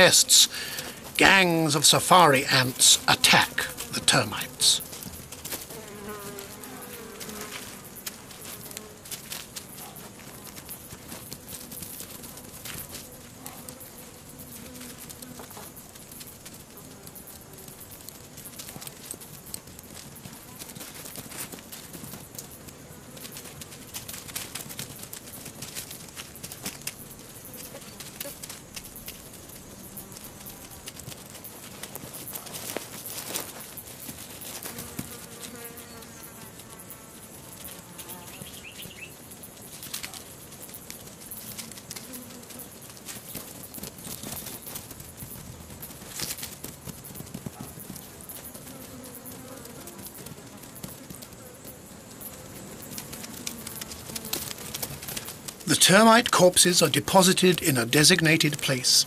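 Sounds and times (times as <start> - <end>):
insect buzzing: 0.0 - 55.7
ants clicking and scratching: 0.0 - 58.7
crackle of small clicks: 23.2 - 27.0, 52.8 - 55.6.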